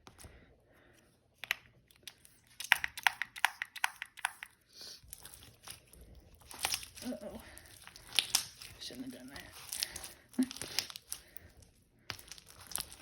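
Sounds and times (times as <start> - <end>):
slime crackling and popping: 5.1 - 13.0.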